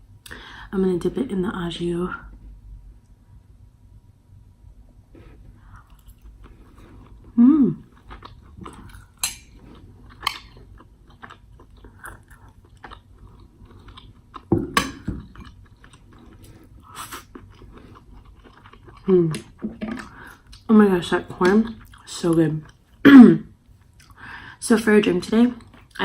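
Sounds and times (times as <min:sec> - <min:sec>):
chewing food: 0:05.2 - 0:20.7, 0:21.4 - 0:23.0.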